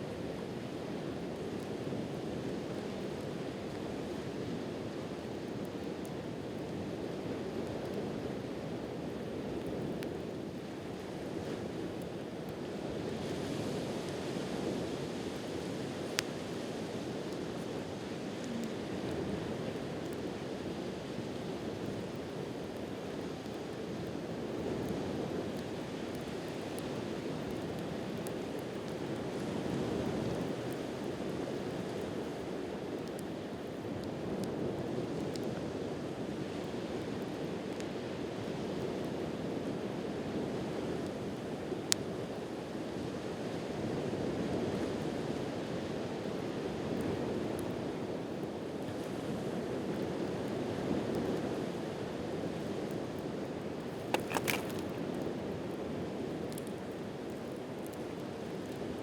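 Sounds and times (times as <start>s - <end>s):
campfire crackling: 0.3s - 13.2s, 15.4s - 35.5s, 53.6s - 59.0s.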